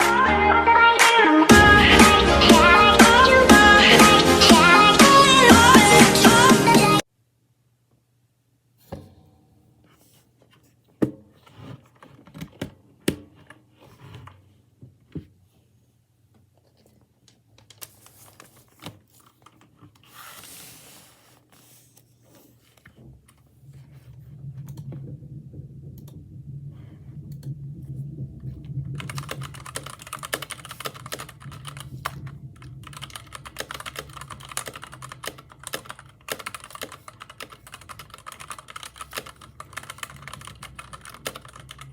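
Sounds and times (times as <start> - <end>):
mechanical keyboard typing: 29.0 - 41.9.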